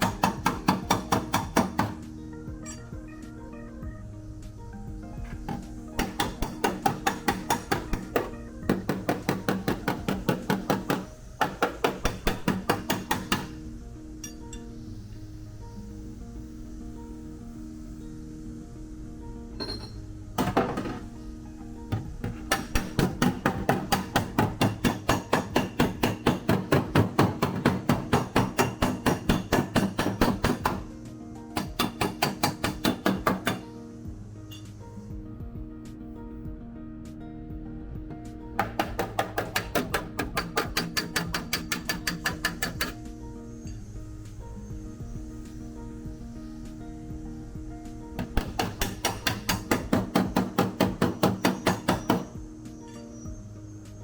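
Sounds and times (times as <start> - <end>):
hammer striking sheet metal: 0.0 - 2.0, 5.5 - 13.6, 22.2 - 30.9, 31.6 - 33.6, 38.6 - 43.0, 48.2 - 52.3
background music: 0.0 - 54.0.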